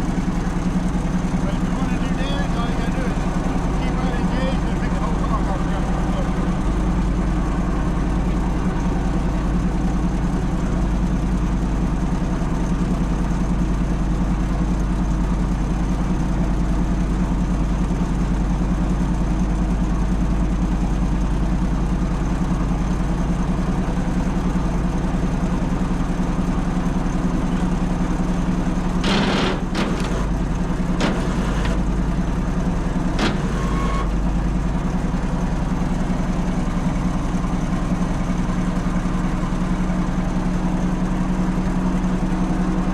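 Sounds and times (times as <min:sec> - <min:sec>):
engine idling: 0:00.0 - 0:42.9
sharp knocks: 0:29.0 - 0:31.9, 0:33.1 - 0:34.1.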